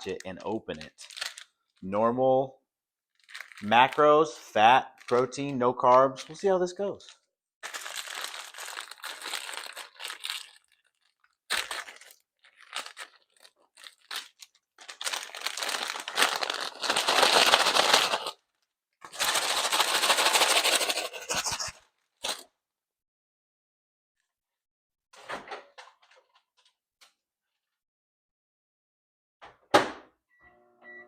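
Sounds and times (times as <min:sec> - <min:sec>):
paper bag crinkling: 0:00.0 - 0:01.9, 0:03.1 - 0:04.2, 0:04.9 - 0:18.4, 0:19.1 - 0:22.4.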